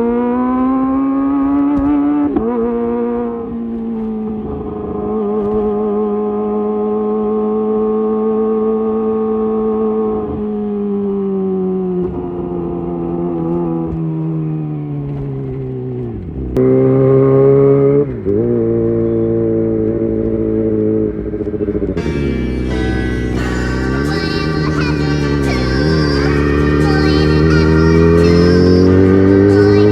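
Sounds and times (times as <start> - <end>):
motorcycle engine revving: 22.0 - 29.9.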